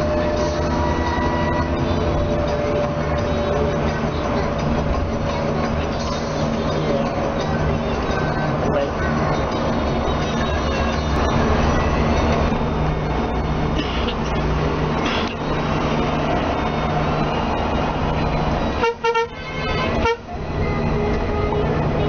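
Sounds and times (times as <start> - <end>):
coach engine drone: 0.0 - 22.0
vehicle horn toots: 18.8 - 20.3.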